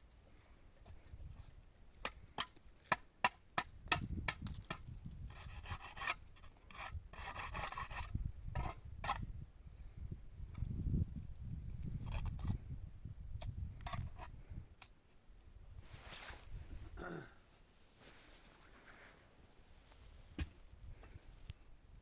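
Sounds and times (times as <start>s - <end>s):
rasping scrapes: 5.3s - 8.8s.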